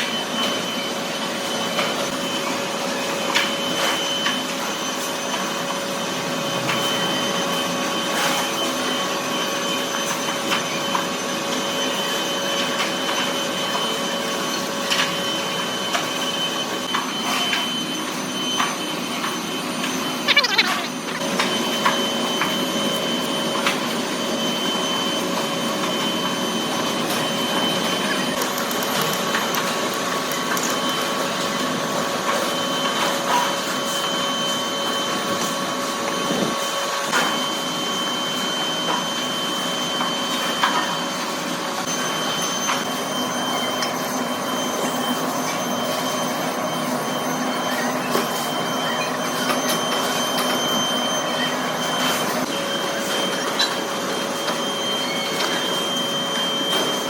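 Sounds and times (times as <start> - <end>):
machinery whines: 0.0 - 57.0.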